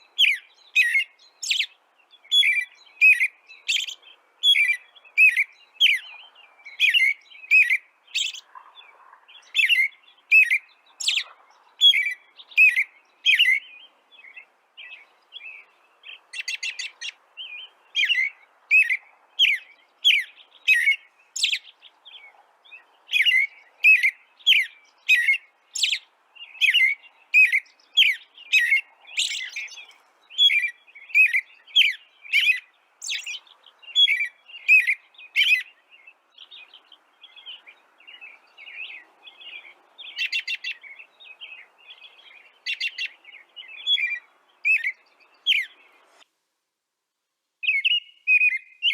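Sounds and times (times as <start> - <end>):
rapid bird trill: 0.0 - 13.6, 16.1 - 17.2, 23.1 - 35.8, 40.1 - 41.0, 42.3 - 45.8
songbirds chirping: 0.0 - 48.9.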